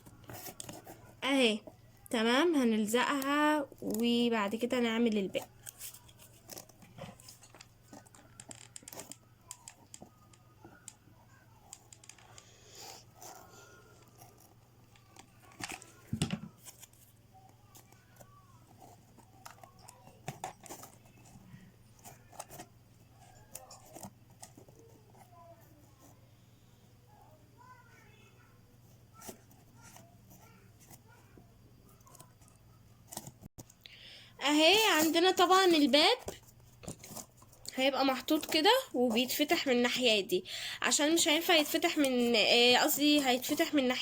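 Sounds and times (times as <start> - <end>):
paper rustling: 0.0 - 1.2, 3.1 - 10.9, 34.8 - 39.6.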